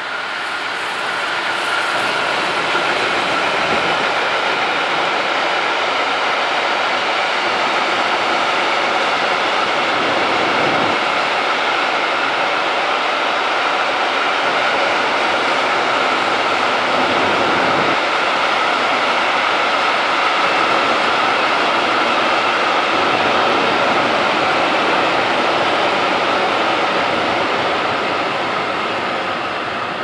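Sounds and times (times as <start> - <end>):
steel wheels running on rails: 0.0 - 30.0.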